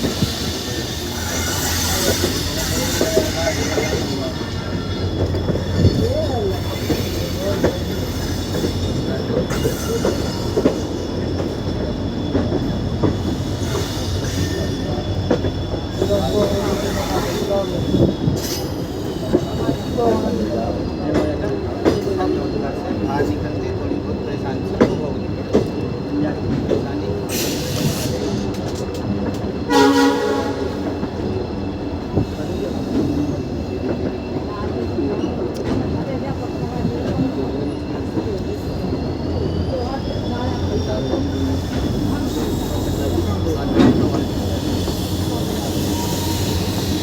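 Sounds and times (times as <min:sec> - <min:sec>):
coaches and wheels clanking: 0:00.0 - 0:47.0
train rumbling: 0:00.0 - 0:47.0
locomotive horn blast: 0:29.7 - 0:31.0.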